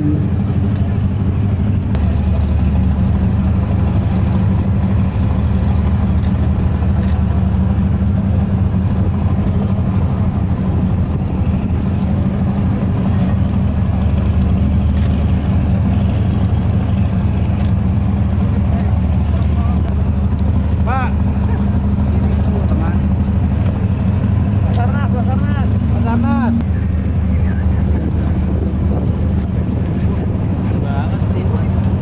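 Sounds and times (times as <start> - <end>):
large engine idling: 0.0 - 32.0
faint clicks: 14.9 - 22.9.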